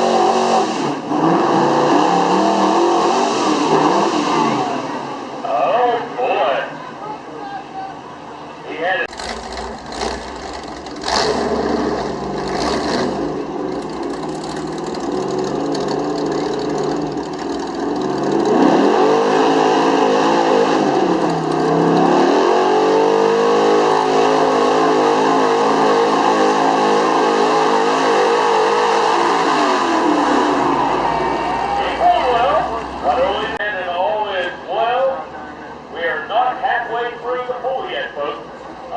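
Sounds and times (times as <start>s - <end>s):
truck engine revving hard: 0.0s - 5.4s, 9.0s - 34.3s.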